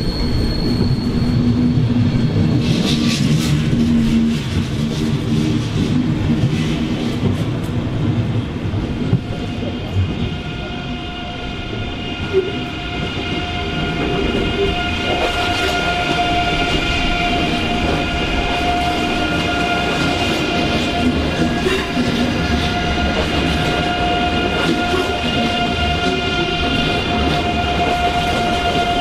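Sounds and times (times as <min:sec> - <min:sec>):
high-pitched train whine: 0:00.0 - 0:29.0
train rumbling: 0:00.0 - 0:29.0.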